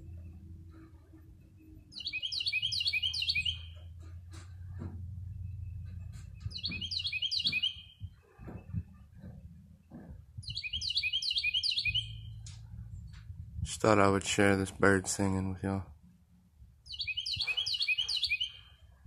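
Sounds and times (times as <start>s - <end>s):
low steady hum: 0.0s - 2.0s, 3.4s - 10.5s, 12.0s - 16.9s
songbird singing: 0.0s - 13.7s, 16.8s - 19.0s.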